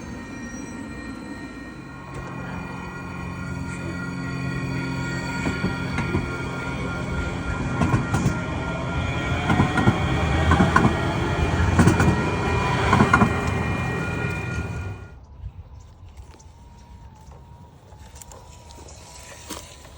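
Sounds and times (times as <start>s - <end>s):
train wheels clicking over rail joints: 0.0s - 15.2s.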